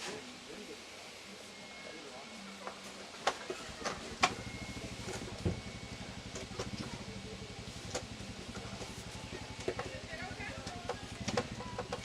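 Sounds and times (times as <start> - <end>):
pulsing engine-like hum: 3.3 - 12.0
sharp clicks and knocks: 10.6 - 12.0.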